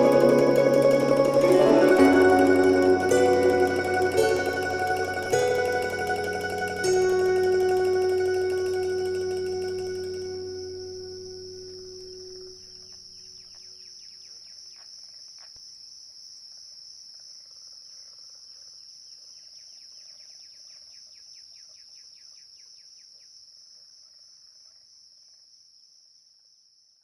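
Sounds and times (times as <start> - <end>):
insect high-pitched trill: 0.0 - 13.3.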